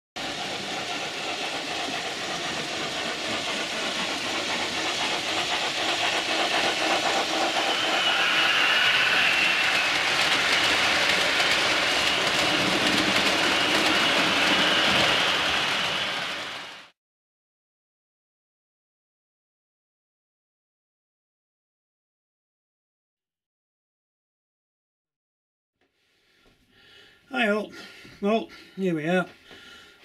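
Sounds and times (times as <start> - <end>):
train clattering on rails: 0.2 - 16.9.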